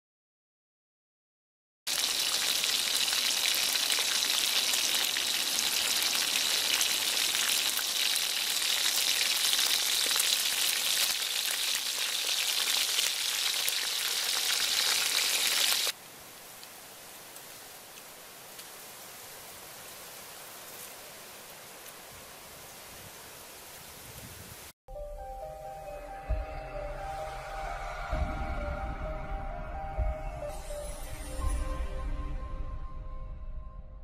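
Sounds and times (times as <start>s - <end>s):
crabs sizzling in hot oil: 1.9s - 16.0s.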